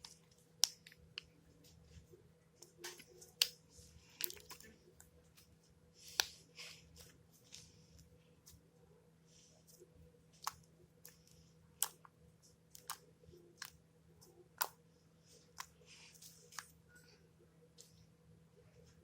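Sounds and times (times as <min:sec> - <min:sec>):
slime squishing: 0:00.0 - 0:08.6, 0:09.4 - 0:17.0.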